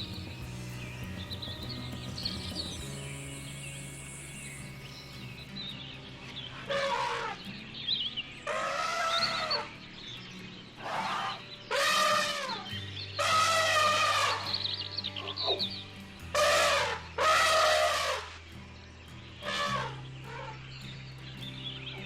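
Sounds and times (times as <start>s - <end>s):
background music: 0.0s - 22.0s
drawn-out animal calls: 6.5s - 7.6s, 8.5s - 9.8s, 10.8s - 15.8s, 16.4s - 18.4s, 19.4s - 20.7s.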